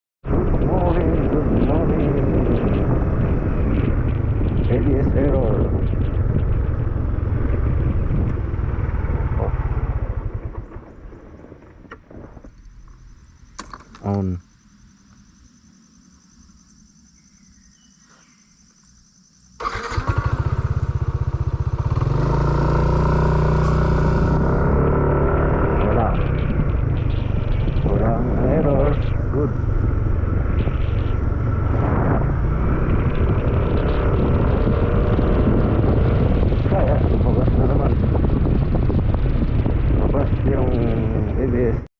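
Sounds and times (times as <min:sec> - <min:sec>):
scooter engine running: 0:05.7 - 0:12.4, 0:19.6 - 0:40.0.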